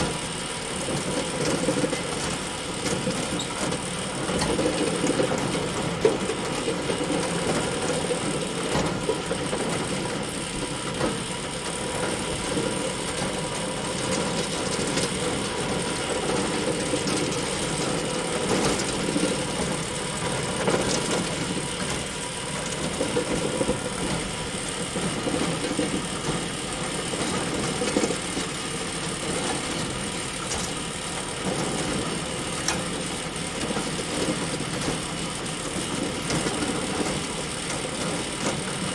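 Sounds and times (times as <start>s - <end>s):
bale elevator mechanical drone: 0.0s - 38.9s.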